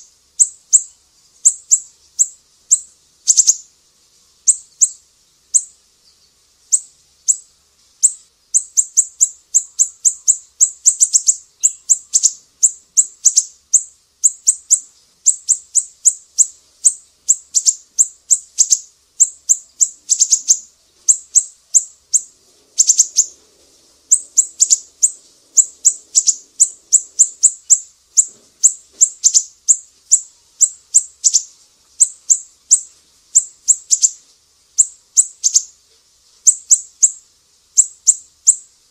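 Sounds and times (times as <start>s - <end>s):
songbird chirping: 0.0s - 38.9s.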